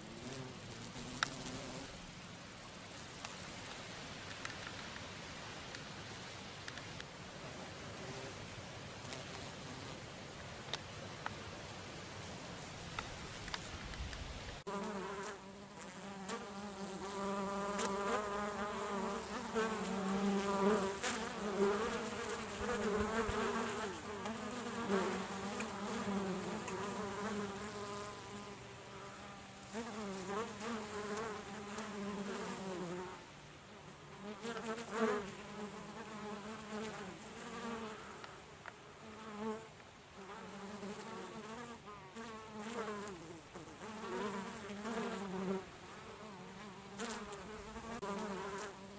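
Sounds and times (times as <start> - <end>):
honeybees buzzing: 14.6 - 33.1.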